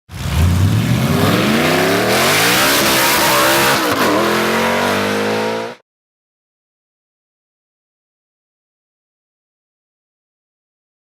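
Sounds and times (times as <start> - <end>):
car engine accelerating: 0.1 - 5.8.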